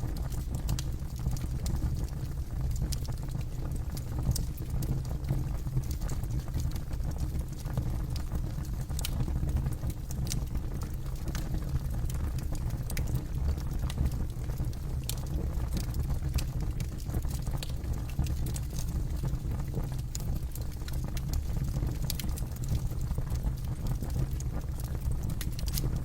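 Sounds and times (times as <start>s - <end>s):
low rumble of flames: 0.0s - 26.0s
wood crackling and popping: 0.1s - 26.0s.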